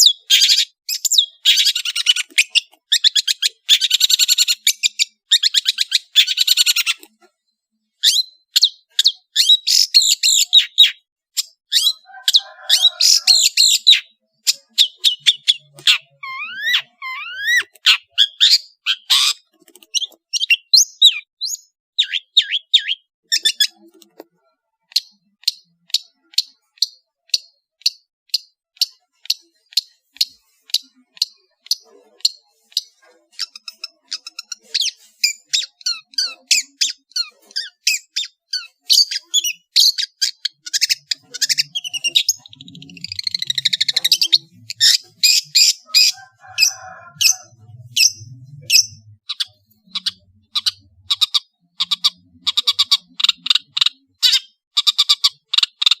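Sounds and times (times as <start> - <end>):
bird harsh buzzy chatter: 8.8 - 21.4, 28.6 - 56.0.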